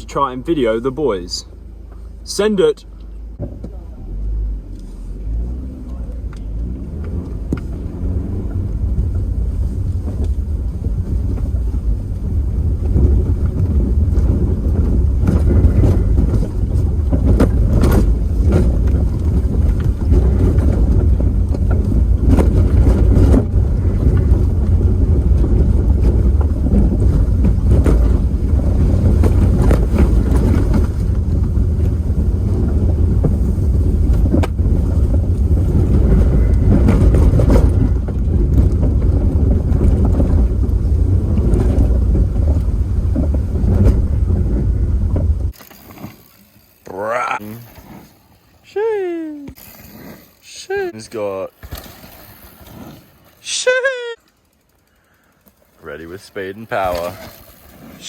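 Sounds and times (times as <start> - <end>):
low rumble: 0.0 - 45.6
wind buffeting microphone: 6.1 - 45.6.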